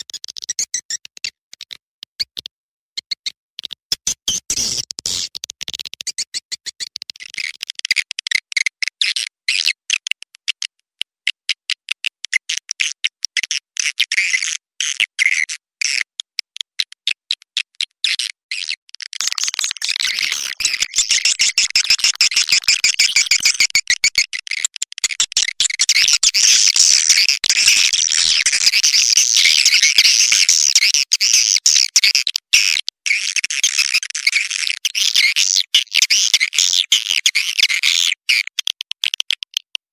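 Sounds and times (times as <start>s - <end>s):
swiftlet twittering: 19.2s - 24.3s.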